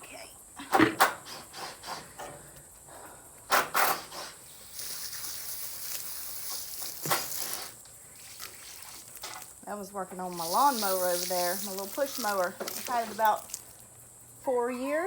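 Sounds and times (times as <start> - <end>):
running water hiss: 1.0 - 15.0
bucket scraping strokes: 3.9 - 9.5, 10.2 - 13.7.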